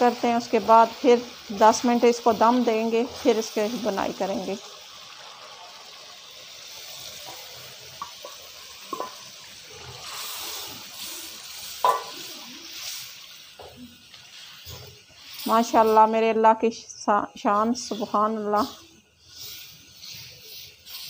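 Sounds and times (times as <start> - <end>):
chicken sizzling in a pan: 0.0 - 21.0
spoon knocking against pan: 11.8 - 12.2.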